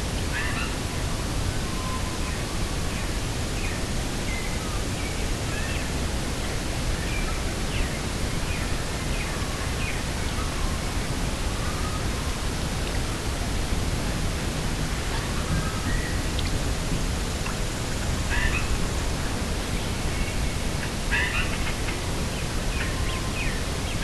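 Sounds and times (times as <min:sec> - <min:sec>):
rushing wind: 0:00.0 - 0:24.0
small birds chirping: 0:08.6 - 0:20.6.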